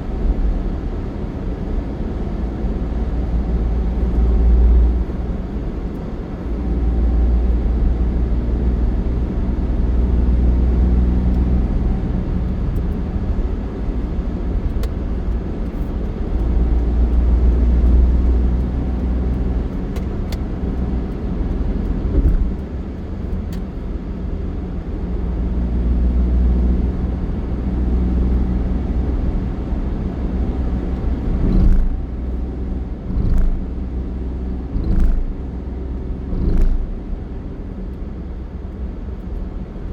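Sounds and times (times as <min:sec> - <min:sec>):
motor vehicle engine rumbling: 0:10.0 - 0:39.9.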